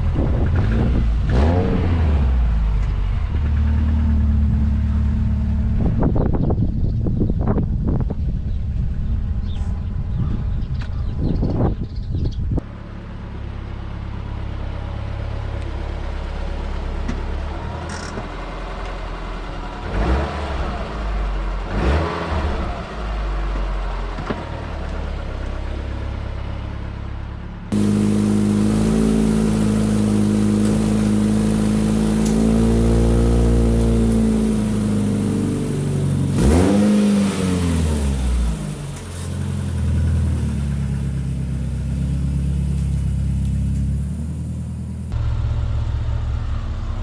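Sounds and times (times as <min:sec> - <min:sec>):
car engine running: 0:27.7 - 0:47.0
hiss: 0:27.8 - 0:44.0.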